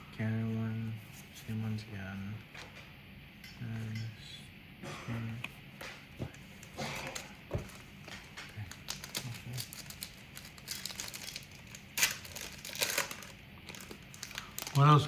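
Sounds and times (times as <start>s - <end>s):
foil wrapper crinkling: 7.1s - 15.0s.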